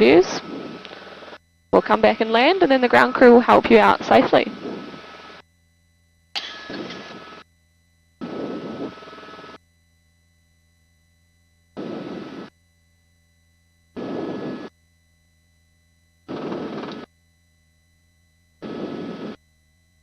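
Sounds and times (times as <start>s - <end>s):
helicopter cabin noise: 0.0s - 5.4s, 6.4s - 7.4s, 8.2s - 9.6s, 11.8s - 12.5s, 14.0s - 14.7s, 16.3s - 17.1s, 18.6s - 19.4s
faint steady hum: 0.0s - 20.0s.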